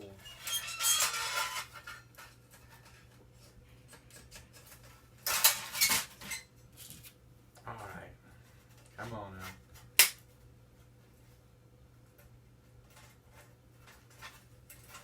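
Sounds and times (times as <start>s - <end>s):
metal parts clinking and scraping: 0.2s - 2.3s, 4.6s - 6.4s.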